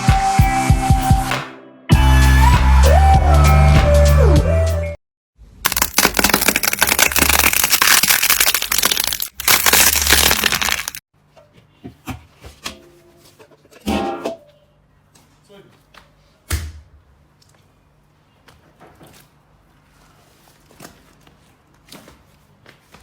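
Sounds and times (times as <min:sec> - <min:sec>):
crunchy slime crackling: 0:05.7 - 0:11.0
slime squelch: 0:05.7 - 0:11.0.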